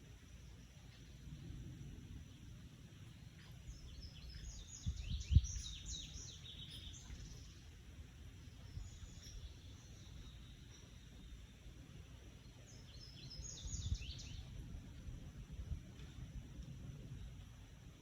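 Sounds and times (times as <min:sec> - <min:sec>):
outdoor background noise: 0:00.0 - 0:18.0
bird chirping: 0:03.1 - 0:14.6.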